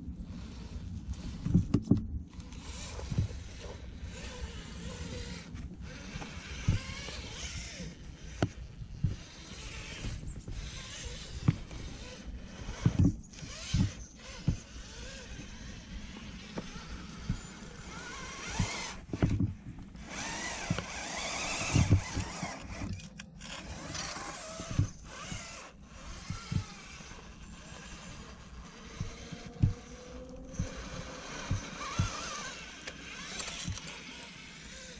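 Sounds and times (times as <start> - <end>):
electric motor whine: 0.0 - 34.9
tyres knocking and scraping rock: 16.5 - 29.8.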